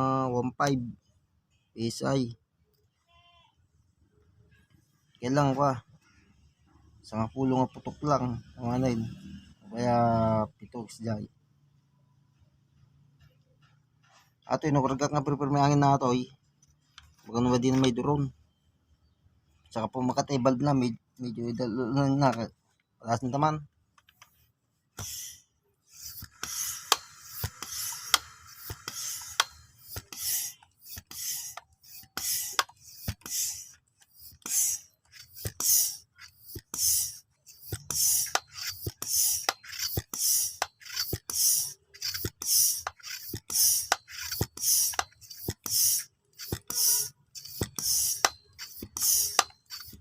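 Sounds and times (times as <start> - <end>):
hand air pump hissing: 25.0 - 50.0
pump clicks: 26.0 - 50.0.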